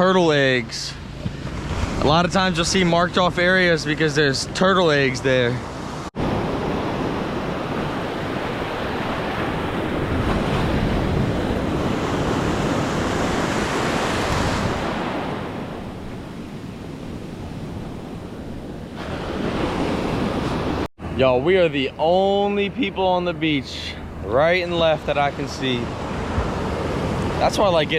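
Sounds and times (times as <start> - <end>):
surf breaking on beach: 5.9 - 20.9, 24.0 - 27.9
wind buffeting microphone: 6.2 - 21.2, 23.4 - 27.9.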